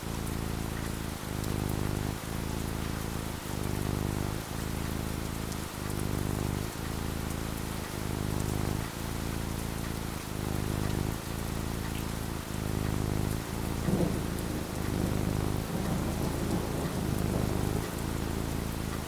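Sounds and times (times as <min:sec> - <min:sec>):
steady rain falling: 0:00.0 - 0:19.0
low thunder rumble: 0:13.0 - 0:19.0.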